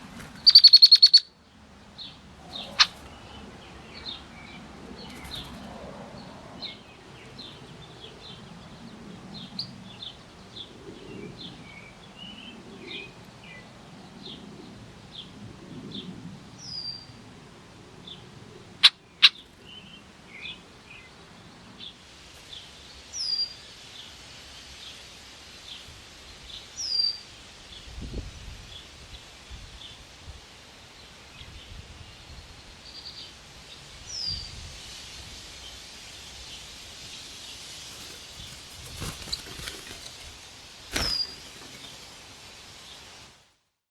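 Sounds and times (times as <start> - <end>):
faint bird chirps: 0.4 - 1.3.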